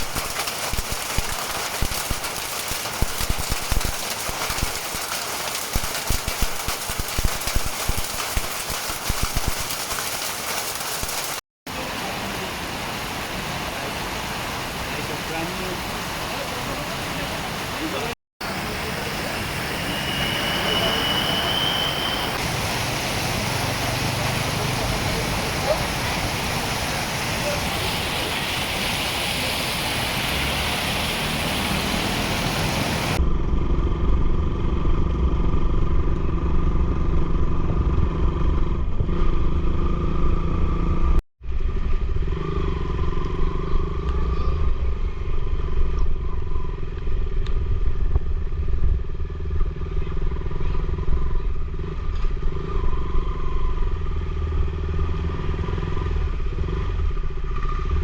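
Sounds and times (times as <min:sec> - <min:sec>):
loud even rushing noise: 0:00.0 - 0:11.4.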